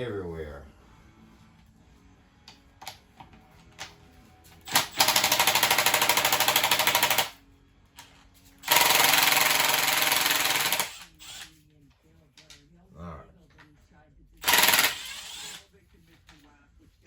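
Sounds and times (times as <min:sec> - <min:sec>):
impact driver hammering: 0:04.6 - 0:07.3, 0:08.6 - 0:11.4, 0:14.4 - 0:15.6.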